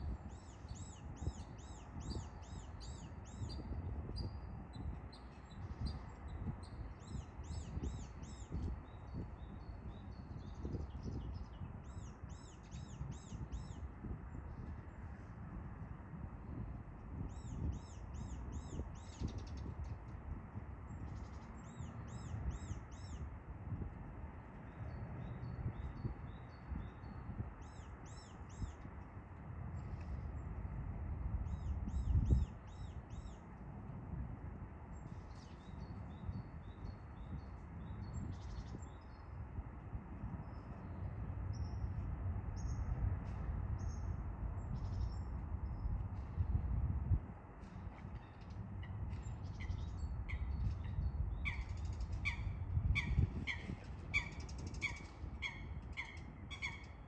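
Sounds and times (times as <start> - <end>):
small songbird singing: 0.0 - 13.8, 17.3 - 19.8
steady low rumble: 0.0 - 57.0.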